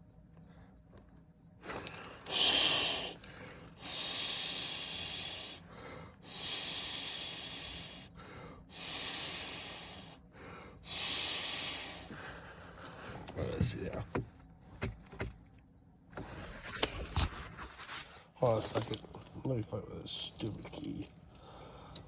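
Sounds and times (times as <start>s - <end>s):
person breathing heavily: 1.7s - 13.3s, 21.3s - 22.0s.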